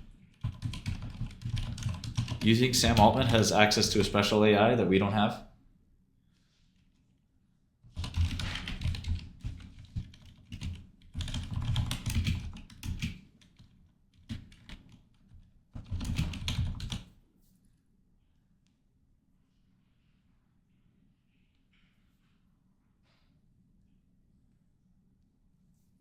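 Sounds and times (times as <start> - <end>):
typing on computer keyboard: 0.0 - 4.0, 7.9 - 17.1.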